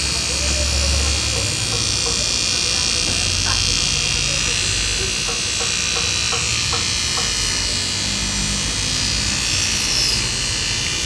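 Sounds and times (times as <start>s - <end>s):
electric tool buzzing: 0.0s - 11.0s.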